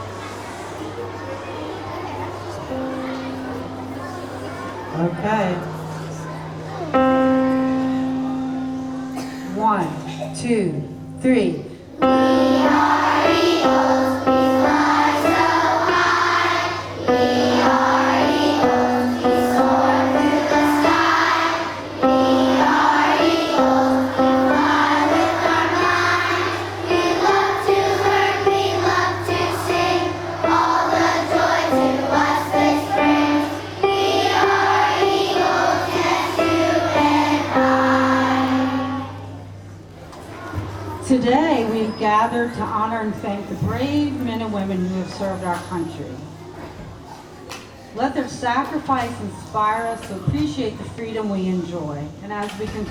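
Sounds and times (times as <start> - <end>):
children's choir singing: 0.0 - 39.8
steady low hum: 2.7 - 40.0.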